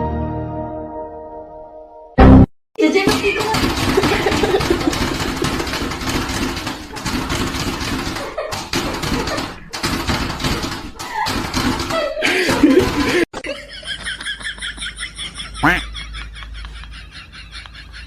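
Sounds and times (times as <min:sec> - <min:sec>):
people talking: 0:02.8 - 0:04.6, 0:15.6 - 0:15.8
people laughing: 0:04.0 - 0:05.9, 0:08.1 - 0:09.7, 0:11.0 - 0:18.0.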